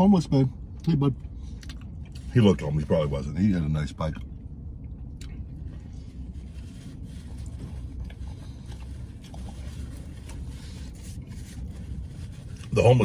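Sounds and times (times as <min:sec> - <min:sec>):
steady low hum: 0:00.0 - 0:13.0
man chewing food: 0:01.2 - 0:02.3, 0:04.2 - 0:12.7.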